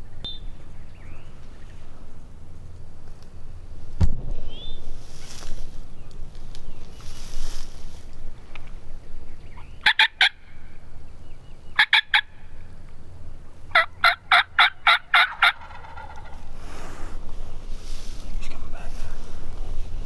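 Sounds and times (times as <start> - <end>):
turkey yelps: 9.8 - 10.5, 11.8 - 12.4, 13.7 - 16.5
faint turkey call: 9.8 - 10.8, 11.8 - 12.4, 13.7 - 17.2.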